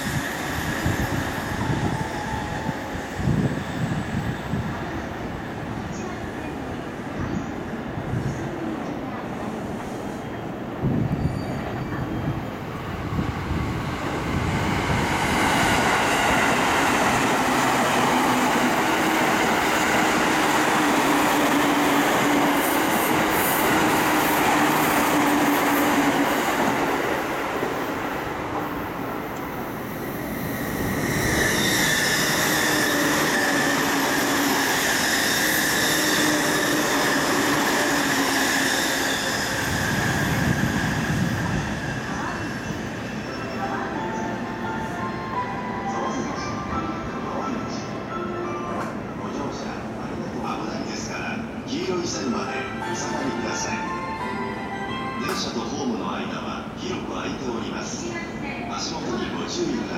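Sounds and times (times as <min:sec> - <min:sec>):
high wheel squeal: 0:30.0 - 0:43.6.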